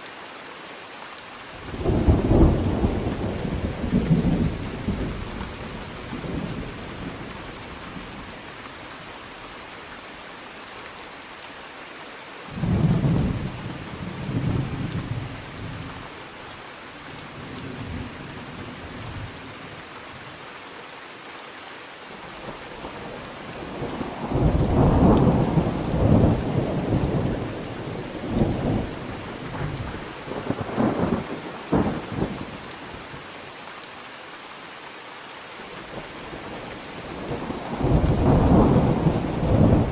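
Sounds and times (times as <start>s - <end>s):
steady rain falling: 0.0s - 39.9s
thunder rumbling: 23.6s - 32.4s, 37.0s - 39.9s.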